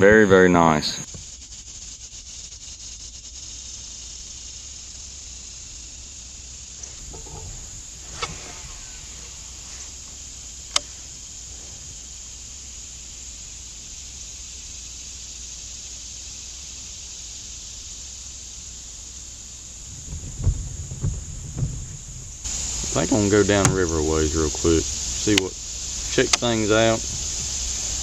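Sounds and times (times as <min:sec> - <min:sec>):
insects buzzing: 0:00.0 - 0:28.0
sharp click: 0:06.8 - 0:09.1, 0:10.7 - 0:10.9, 0:25.3 - 0:25.5, 0:26.2 - 0:26.5
low knocks: 0:06.8 - 0:12.2, 0:19.7 - 0:24.5.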